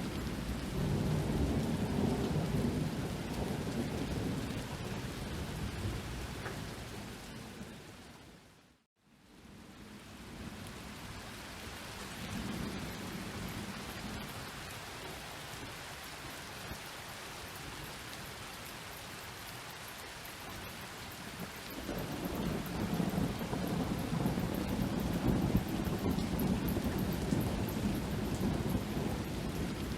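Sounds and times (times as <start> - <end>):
distant thunder rumble: 0.0 - 7.8, 21.4 - 29.9
steady rain: 0.0 - 29.9.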